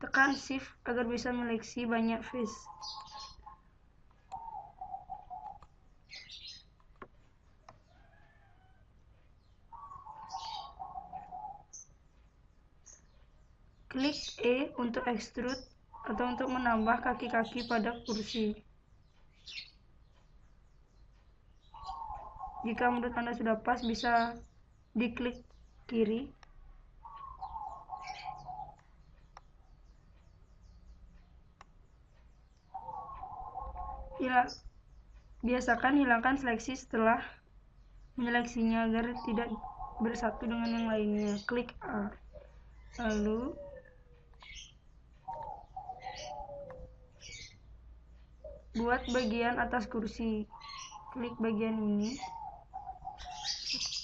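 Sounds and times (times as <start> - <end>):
birds chirping: 0.0 - 54.0
clear bird calls: 0.0 - 54.0
faint sharp clicks: 31.2 - 31.8.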